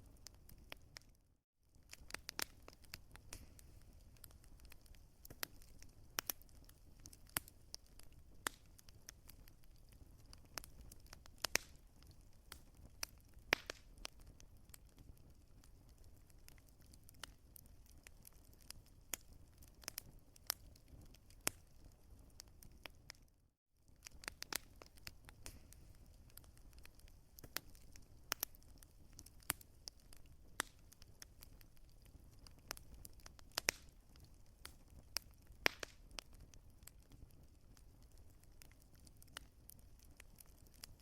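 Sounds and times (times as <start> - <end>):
wood fire crackling and popping: 0.0 - 23.3, 23.9 - 41.0.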